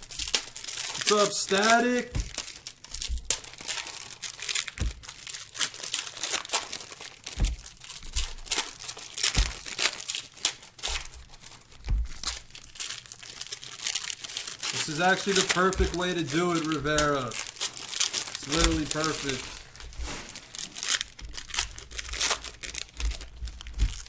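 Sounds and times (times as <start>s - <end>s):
plastic wrapping crinkling: 0.0s - 24.0s
soft low thumps: 2.1s - 3.4s, 4.8s - 5.1s, 7.4s - 8.6s, 9.3s - 9.7s, 10.9s - 12.4s, 15.7s - 17.5s.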